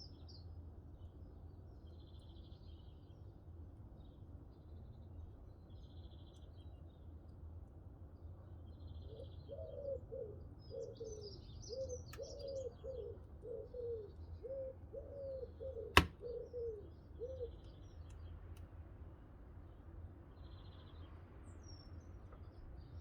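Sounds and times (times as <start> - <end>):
bird cooing: 9.2 - 17.6
small birds chirping: 10.6 - 18.4.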